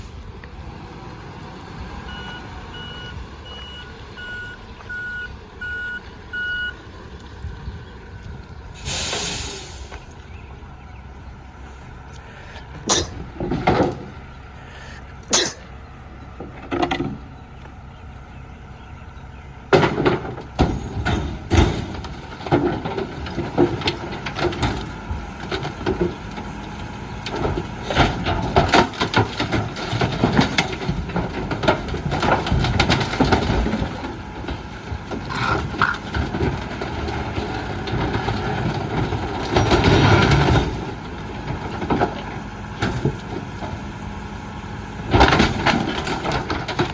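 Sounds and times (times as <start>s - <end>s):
truck engine running: 0.0s - 46.9s
garbage truck bangs: 19.7s - 26.6s, 27.4s - 43.9s, 44.8s - 46.9s.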